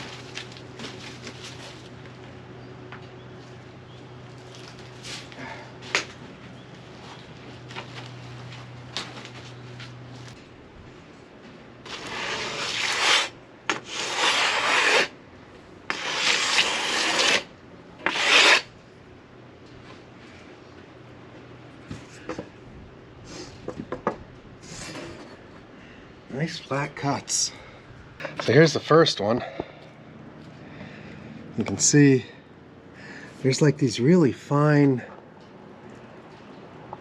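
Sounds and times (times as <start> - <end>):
steady low hum: 0.0 - 37.0
rasping strokes on wood: 11.9 - 15.1, 15.9 - 18.7.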